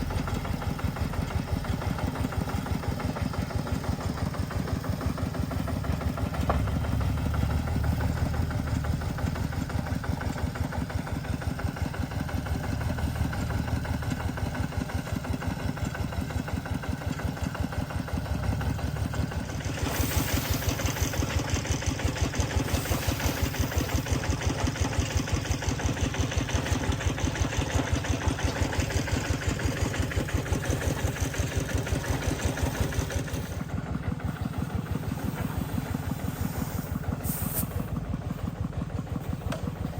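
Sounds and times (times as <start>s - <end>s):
engine pulsing: 0.0s - 39.9s
harsh hiss and rattle: 19.5s - 27.0s, 34.5s - 38.0s.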